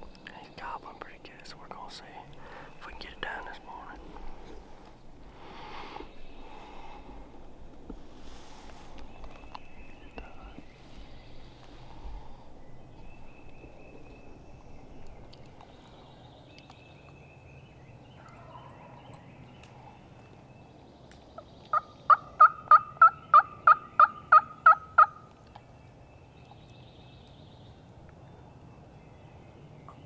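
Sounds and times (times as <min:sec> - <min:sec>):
turkey yelping: 0:21.7 - 0:25.2.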